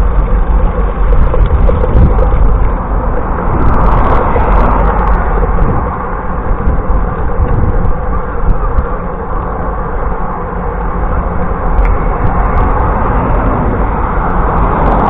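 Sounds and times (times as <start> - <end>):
wind buffeting the microphone: 0.0 - 10.3, 11.0 - 15.0
bicycle road noise: 0.0 - 15.0.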